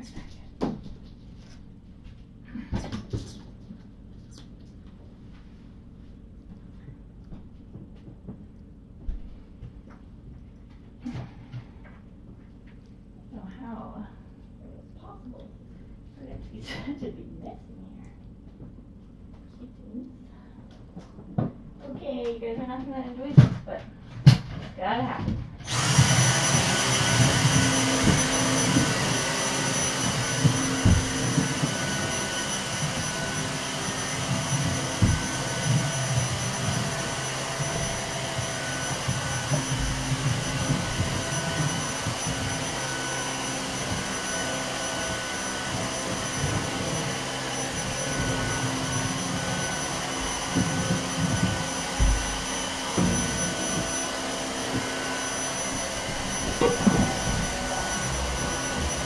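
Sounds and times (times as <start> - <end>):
vacuum cleaner whining: 0.0 - 17.7, 18.4 - 59.0
low bumps of vacuum moving: 25.7 - 59.0.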